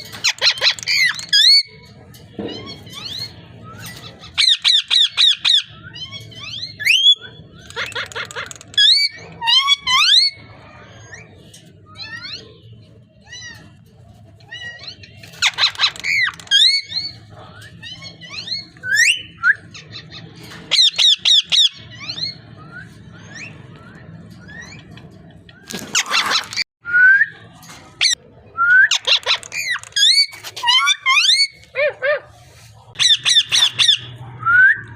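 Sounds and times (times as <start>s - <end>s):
parrot squawking: 0.0s - 1.8s, 2.5s - 11.3s, 14.5s - 22.5s, 25.7s - 26.6s, 28.9s - 32.3s, 33.0s - 34.2s.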